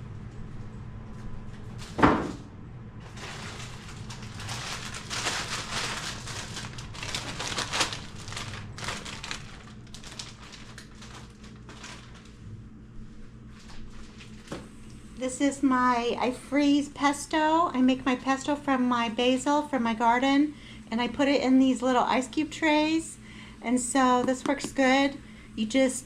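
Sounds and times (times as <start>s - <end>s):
low steady hum: 0.0s - 26.0s
plastic bags crinkling: 3.0s - 12.4s.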